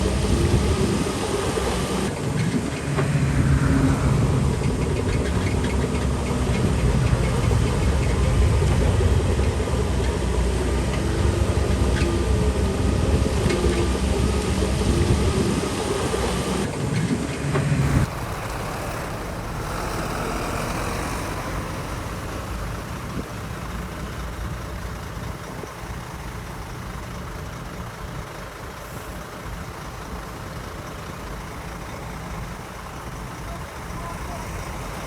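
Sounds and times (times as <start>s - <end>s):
heavy machinery diesel engine: 0.0s - 35.0s
rough rumble: 17.7s - 35.0s.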